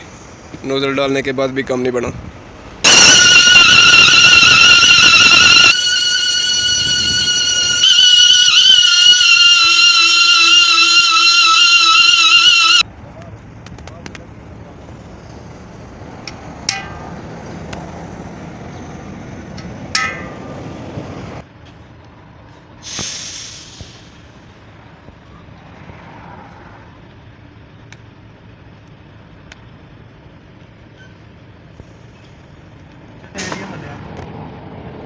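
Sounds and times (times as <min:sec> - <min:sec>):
steady machine noise: 0:02.8 - 0:12.8
compressed air hissing: 0:22.8 - 0:24.2.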